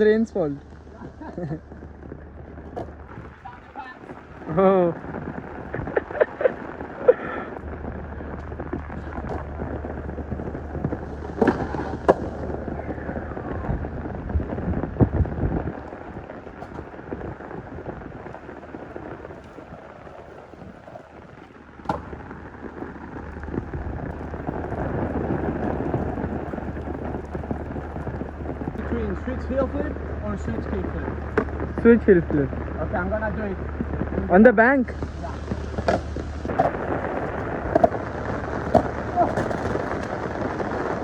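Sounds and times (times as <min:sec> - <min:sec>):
rain: 0:00.0 - 0:41.0
short rumble: 0:00.0 - 0:41.0
wind noise: 0:00.0 - 0:41.0
skateboard knocking on concrete: 0:01.0 - 0:32.4, 0:34.9 - 0:41.0.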